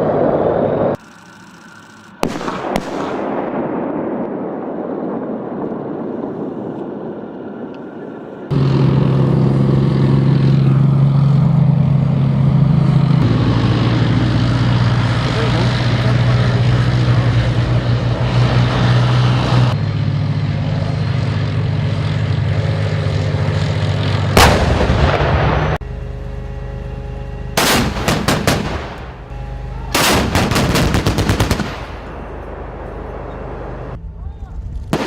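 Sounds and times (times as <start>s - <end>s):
tank engine running: 0.0s - 3.4s, 7.8s - 35.0s
machine-gun fire: 2.2s - 4.2s, 27.6s - 29.2s, 29.9s - 32.3s
loud blast: 24.3s - 25.8s, 27.6s - 33.9s.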